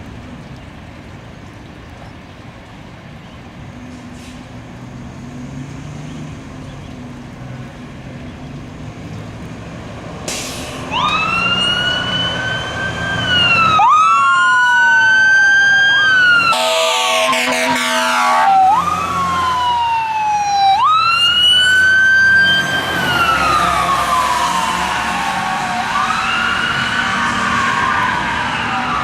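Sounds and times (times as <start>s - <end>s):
fire engine diesel rumbling: 0.0s - 29.0s
electronic sirens wailing: 10.9s - 29.0s
air horn blasts: 16.5s - 18.6s.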